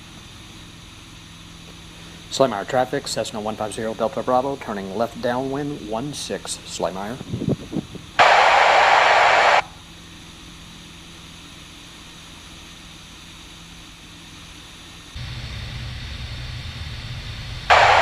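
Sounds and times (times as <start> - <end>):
low hum: 8.2 - 9.8, 15.2 - 18.0
radio static hiss: 8.2 - 9.8, 17.7 - 18.0.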